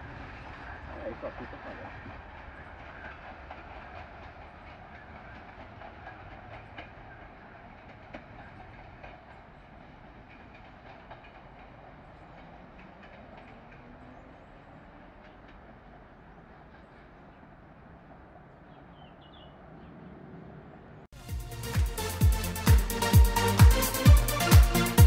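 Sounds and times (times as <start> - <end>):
train wheels clicking over rails: 0.0 - 18.3.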